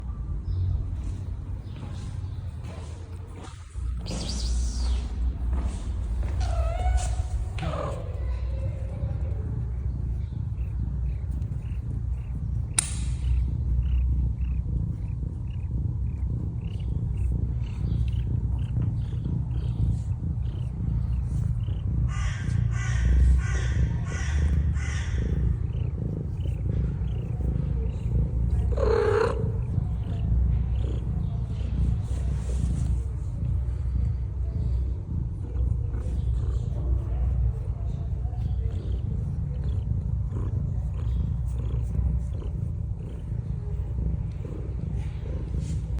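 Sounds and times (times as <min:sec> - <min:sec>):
cat purring: 0:00.0 - 0:45.9
cat calling: 0:03.9 - 0:14.6, 0:16.5 - 0:31.6.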